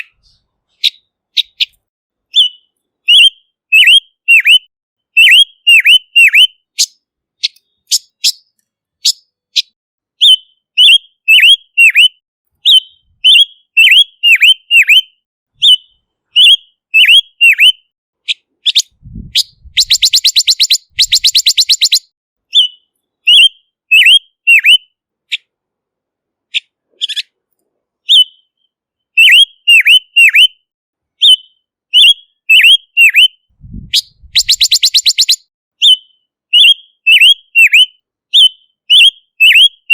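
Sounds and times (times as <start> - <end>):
dry rattling bird trill: 0.0 - 17.7, 18.3 - 24.8, 34.0 - 37.8
bird whistled notes: 0.0 - 17.9, 18.7 - 24.9, 28.1 - 30.6, 31.2 - 39.9.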